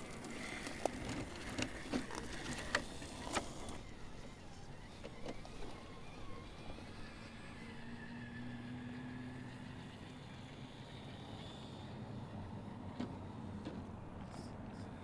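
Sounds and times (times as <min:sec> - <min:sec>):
electric motor whining: 0:00.0 - 0:09.0.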